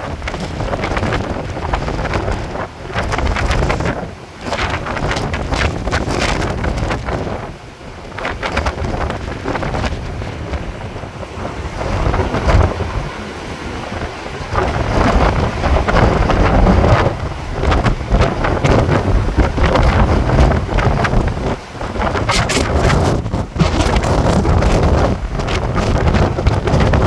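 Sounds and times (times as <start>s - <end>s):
strong wind buffeting microphone: 0.0s - 27.0s
surf on beach: 0.0s - 27.0s.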